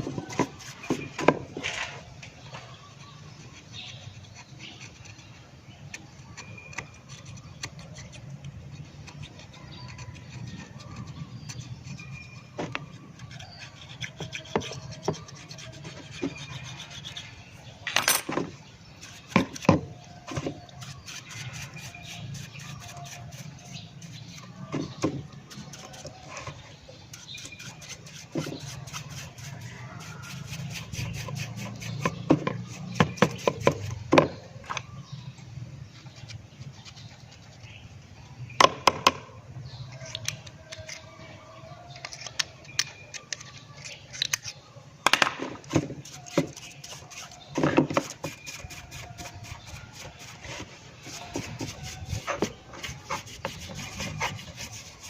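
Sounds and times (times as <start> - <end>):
clicks and rubbing from hand work: 0.0 - 55.0.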